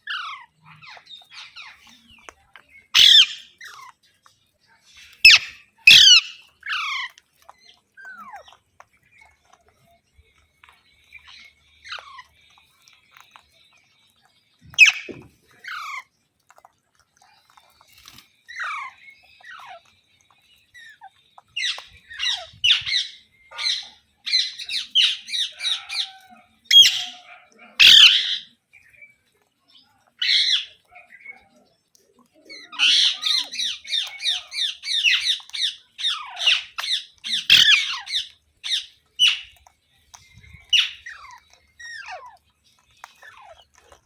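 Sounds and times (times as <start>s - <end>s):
parrot screeching: 3.0s - 3.5s, 5.2s - 7.1s, 14.8s - 16.0s, 21.6s - 28.5s, 32.8s - 39.5s.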